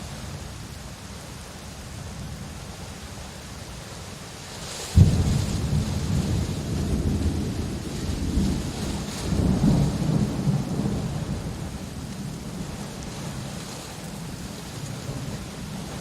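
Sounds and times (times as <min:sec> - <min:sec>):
rain hiss: 0:00.0 - 0:16.0
thunder crack and rumble: 0:05.0 - 0:16.0.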